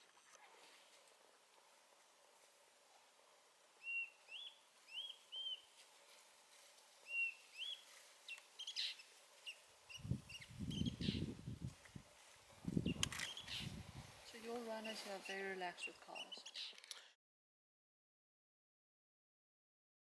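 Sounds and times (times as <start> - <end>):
bird whistling and chirping: 3.8 - 5.6, 7.1 - 7.8, 8.6 - 9.0, 9.9 - 11.3, 12.8 - 13.8.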